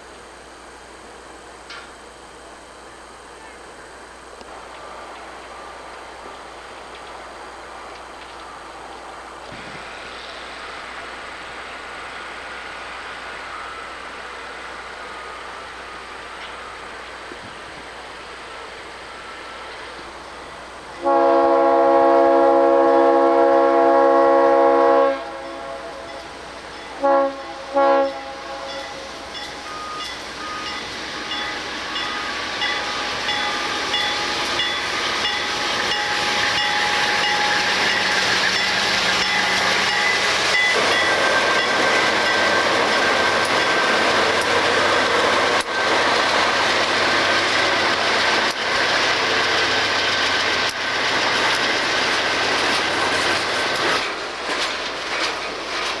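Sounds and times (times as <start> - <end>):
train wheels rumbling on rails: 0.0 - 56.0
crossing bell dinging: 25.5 - 45.4.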